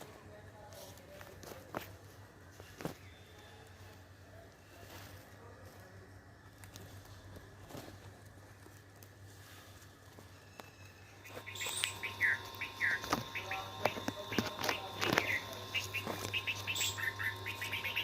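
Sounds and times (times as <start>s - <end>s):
baby birds chirping: 11.2s - 18.0s.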